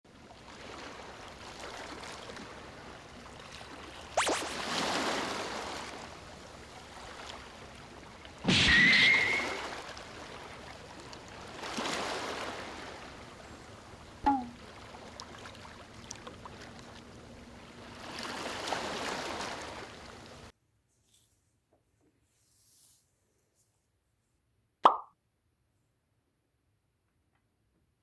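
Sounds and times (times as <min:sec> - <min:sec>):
waves breaking on shore: 0:00.1 - 0:20.5
high whistling tone: 0:04.2 - 0:04.7, 0:08.5 - 0:09.8.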